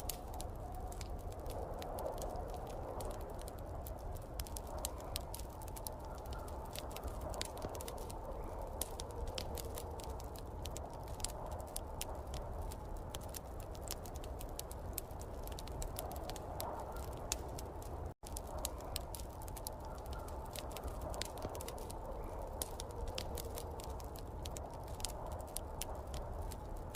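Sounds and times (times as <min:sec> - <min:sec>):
wood fire crackling and popping: 0:00.0 - 0:26.9.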